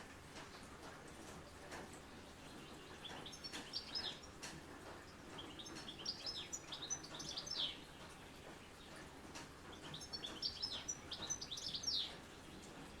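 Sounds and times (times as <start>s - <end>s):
faint rain patter: 0.0s - 13.0s.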